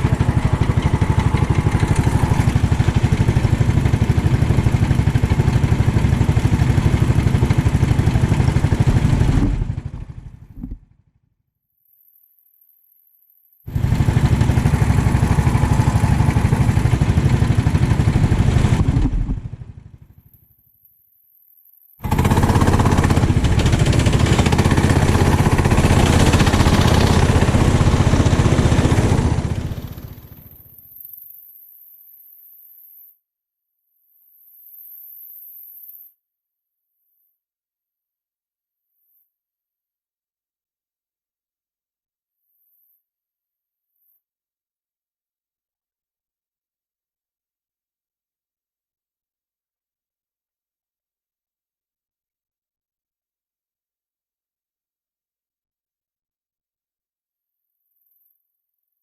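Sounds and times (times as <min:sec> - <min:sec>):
kart engine running: 0:00.0 - 0:10.9, 0:13.7 - 0:20.2, 0:22.0 - 0:30.8.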